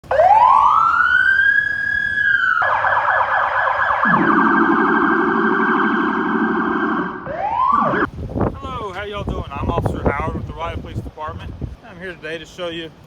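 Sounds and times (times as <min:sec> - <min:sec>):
lower-pitched siren tone: 0:00.0 - 0:08.1
police siren wailing and yelping: 0:00.0 - 0:08.1.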